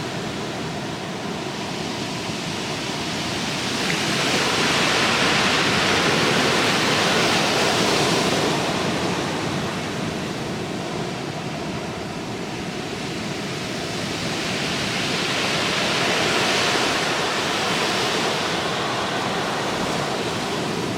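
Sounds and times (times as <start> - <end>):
ocean surf breaking: 15.5 - 20.9.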